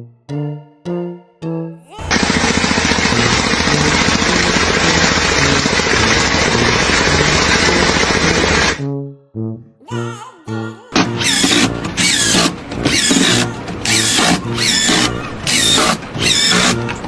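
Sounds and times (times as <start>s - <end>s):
loud pulsing machine noise: 2.0s - 8.8s, 11.0s - 17.0s.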